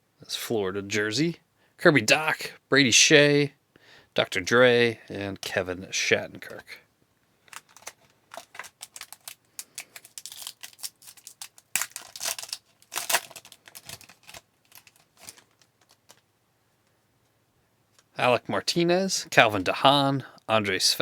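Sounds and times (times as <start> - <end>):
foil wrapper crinkling and tearing: 7.4 - 16.2.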